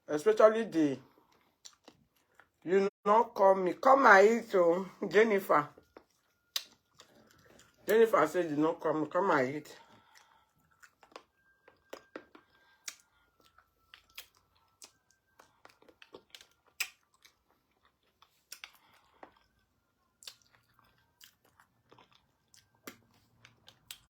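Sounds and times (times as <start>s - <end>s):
person chewing food: 1.0s - 2.7s, 5.6s - 8.1s, 9.6s - 24.0s
wet mouth smacks and clicks: 6.5s - 6.8s, 16.1s - 17.3s, 20.2s - 20.5s.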